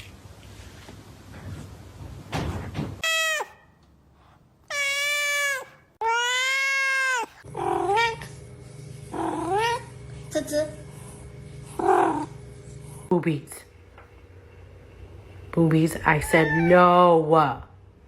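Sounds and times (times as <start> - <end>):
cat meowing: 4.7 - 8.1, 16.3 - 16.9.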